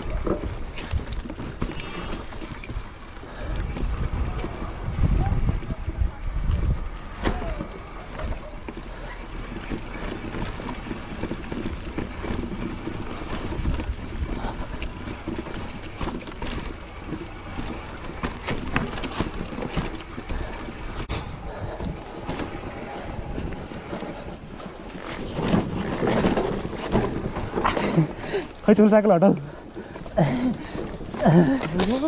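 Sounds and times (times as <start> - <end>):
bike clicks and rattles: 0.0 - 32.0
bike tyres rumbling on dirt: 0.0 - 32.0
wind on microphone: 3.6 - 7.5.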